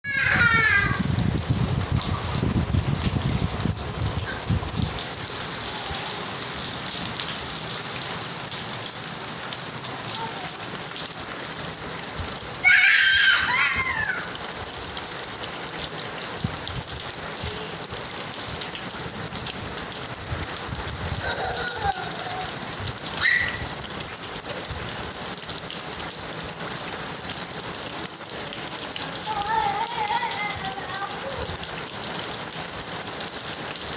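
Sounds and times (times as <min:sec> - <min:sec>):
high-pitched voice: 0:00.0 - 0:01.1, 0:05.6 - 0:06.5, 0:10.1 - 0:10.7, 0:17.4 - 0:18.0, 0:21.1 - 0:23.6, 0:29.0 - 0:31.6
rain pattering on a surface: 0:00.0 - 0:33.9.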